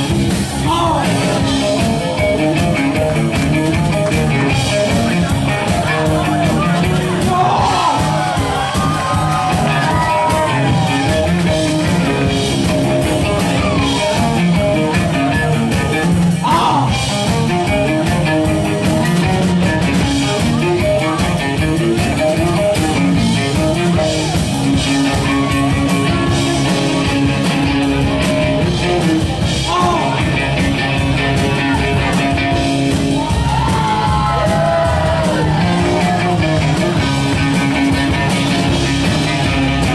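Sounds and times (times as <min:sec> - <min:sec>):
drum beat: 0:00.0 - 0:39.9.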